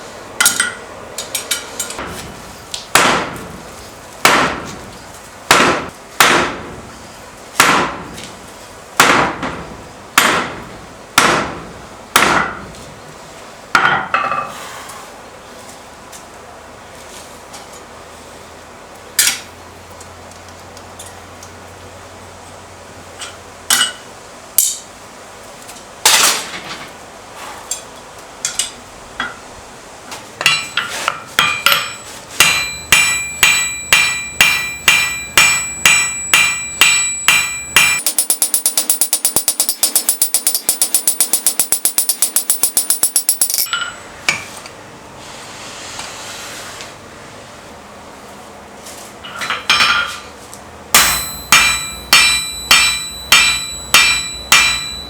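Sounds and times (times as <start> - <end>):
hammer striking steel on anvil: 10.2 - 10.6, 30.4 - 44.0, 50.9 - 55.0.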